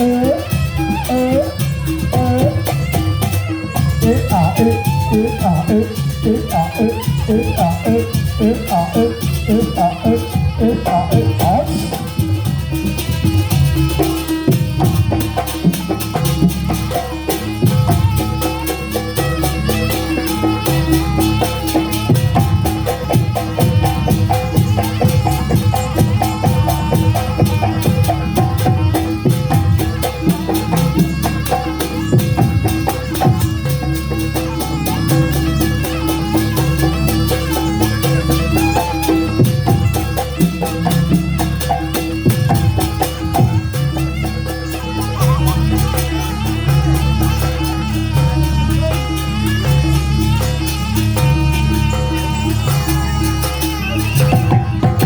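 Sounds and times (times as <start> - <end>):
drums: 0.0 - 55.0
metallic percussion strokes: 0.0 - 55.0
melodic pitched notes: 44.5 - 46.6
melody line: 45.0 - 46.0.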